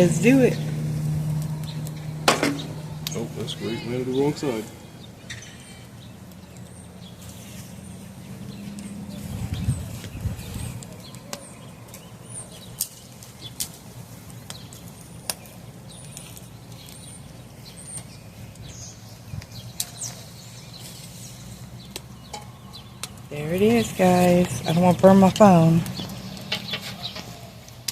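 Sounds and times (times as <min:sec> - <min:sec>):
low rumble: 0:00.0 - 0:05.2
low hum: 0:00.0 - 0:07.1
birds chirping faintly: 0:00.0 - 0:27.9
wood fire crackling: 0:00.0 - 0:27.9.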